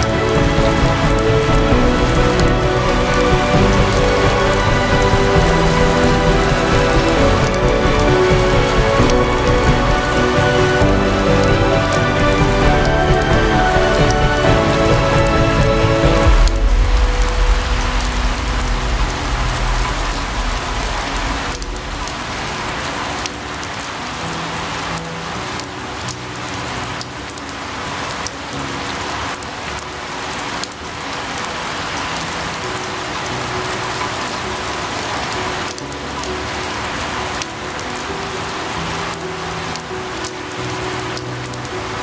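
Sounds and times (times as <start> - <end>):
deep low rumble: 0.0 - 23.3
steady rain falling: 0.0 - 42.0.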